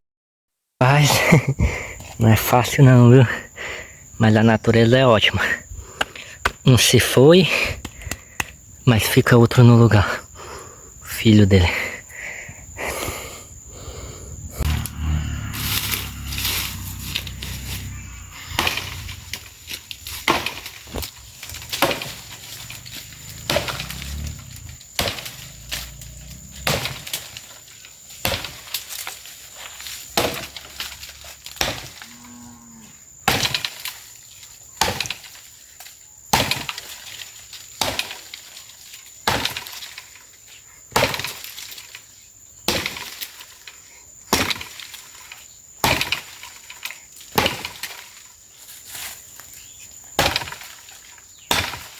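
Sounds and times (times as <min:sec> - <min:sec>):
cow mooing: 0:14.6 - 0:19.5, 0:22.8 - 0:24.7, 0:25.4 - 0:26.9, 0:32.0 - 0:33.0
axe chopping tree trunk: 0:19.9 - 0:25.9, 0:26.6 - 0:27.4, 0:28.1 - 0:29.2, 0:30.0 - 0:32.0, 0:33.2 - 0:33.9, 0:34.8 - 0:35.3, 0:36.3 - 0:36.9, 0:37.8 - 0:38.4, 0:39.2 - 0:39.9, 0:40.9 - 0:41.5, 0:42.6 - 0:43.3, 0:44.3 - 0:44.9, 0:45.8 - 0:46.4, 0:47.3 - 0:48.0, 0:50.2 - 0:51.9.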